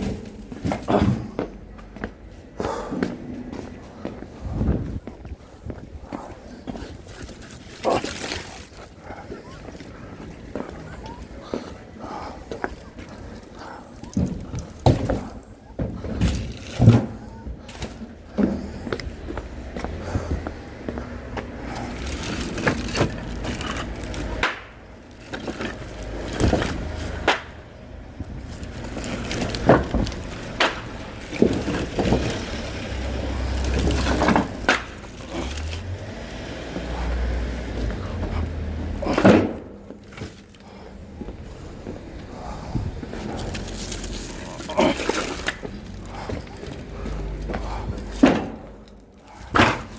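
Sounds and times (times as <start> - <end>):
objects knocking and clattering: 12.6 - 18.8, 21.4 - 40.6.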